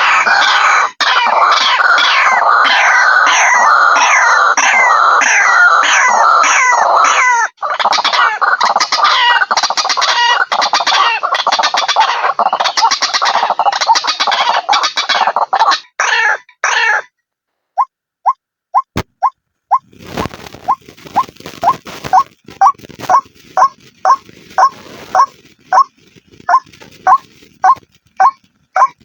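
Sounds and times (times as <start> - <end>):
waterhen calling: 20.4 - 29.0.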